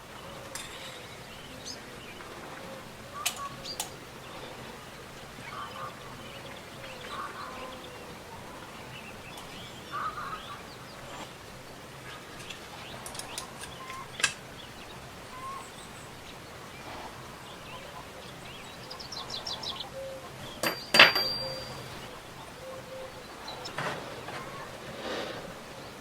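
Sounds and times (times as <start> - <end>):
birds chirping: 0.0 - 26.0
steady background hiss: 0.0 - 26.0.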